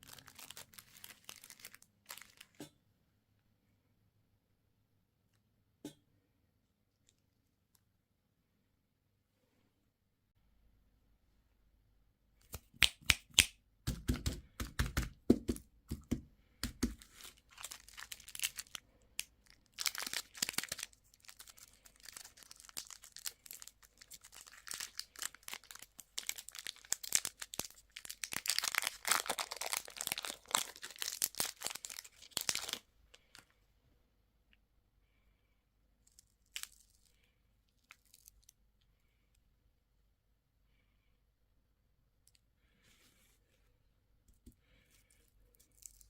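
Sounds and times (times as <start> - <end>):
wrapper crinkling and tearing: 0.0 - 2.6, 16.9 - 33.4, 36.1 - 37.1, 45.6 - 46.0
plastic packaging clicking and cracking: 16.7 - 32.8.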